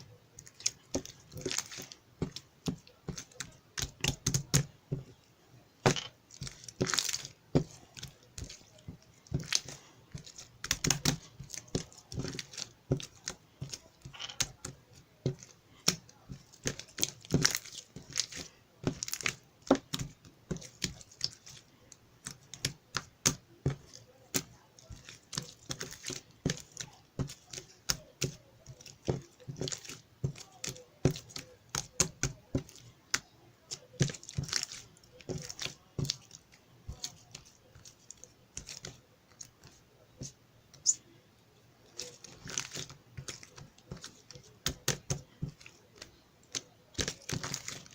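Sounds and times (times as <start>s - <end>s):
paper or plastic crinkling: 42.0s - 47.9s.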